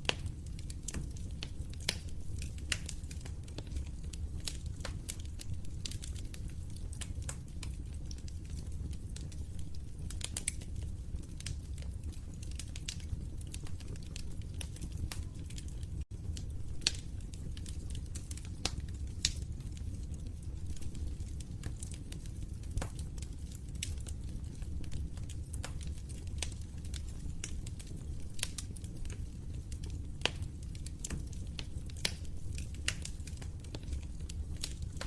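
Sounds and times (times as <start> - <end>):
fireplace fire crackling: 0.0 - 35.0.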